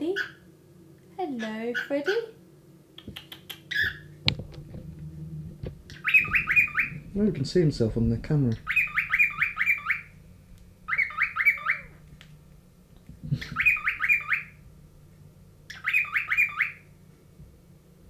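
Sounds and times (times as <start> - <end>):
cockatiel chirping: 0.1 - 0.4, 1.4 - 2.3, 3.0 - 4.1, 5.9 - 7.0, 8.5 - 10.2, 10.9 - 12.0, 13.4 - 14.6, 15.7 - 16.9.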